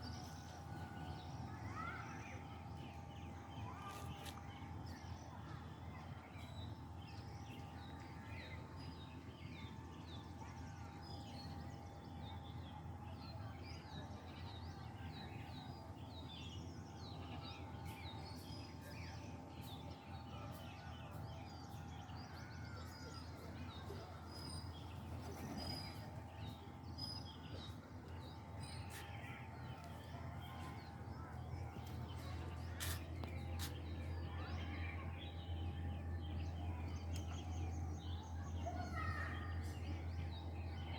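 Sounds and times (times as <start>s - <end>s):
steady low hum: 0.0s - 40.9s
chorus of birds calling: 20.3s - 40.9s.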